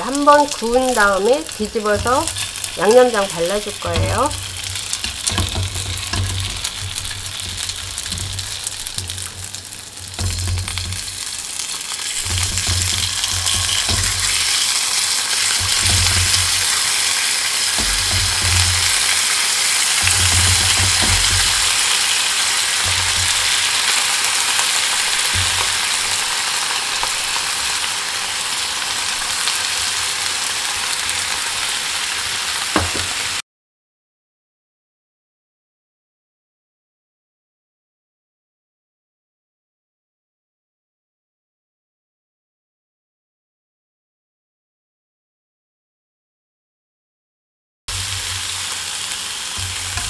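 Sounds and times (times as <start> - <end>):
food sizzling in oil: 0.0 - 33.4, 47.9 - 50.0.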